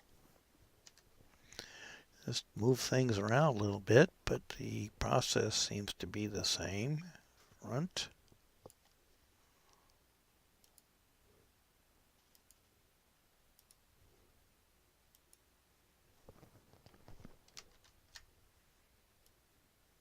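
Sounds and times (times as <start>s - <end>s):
computer mouse clicks: 0.8s - 1.1s, 10.6s - 10.9s, 12.2s - 12.7s, 13.6s - 13.8s.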